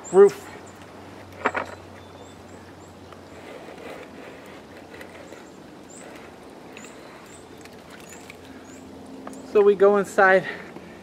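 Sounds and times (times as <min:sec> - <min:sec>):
small bird chirping: 0:01.6 - 0:03.4, 0:05.0 - 0:09.6.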